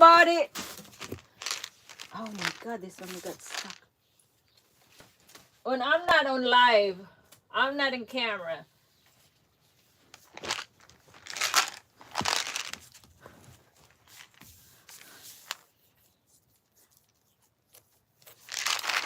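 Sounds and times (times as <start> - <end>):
packaging rustling: 0.6 - 3.8, 10.1 - 15.7, 18.3 - 19.0
packaging tearing: 0.6 - 3.8, 10.2 - 12.9, 18.2 - 19.0.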